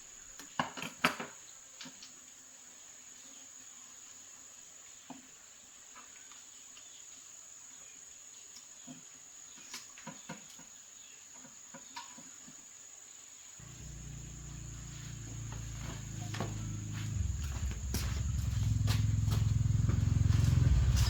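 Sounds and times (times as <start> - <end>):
insect chirring: 13.6 - 21.0.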